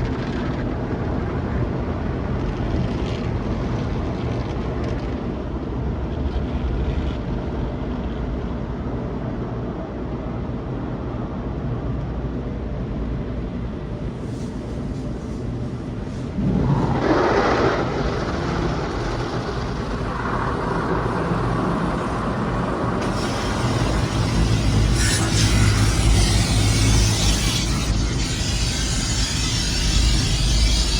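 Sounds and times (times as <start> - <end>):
car wash machinery rumbling: 13.4 - 30.9
rushing water spray: 16.2 - 30.9.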